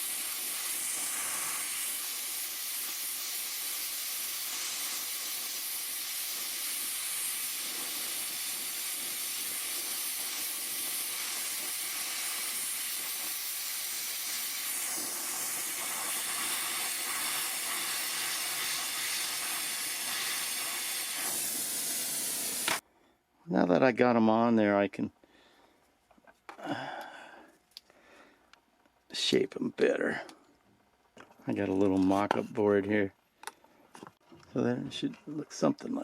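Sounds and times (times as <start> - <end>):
welding torch flame hissing: 0.0 - 22.8.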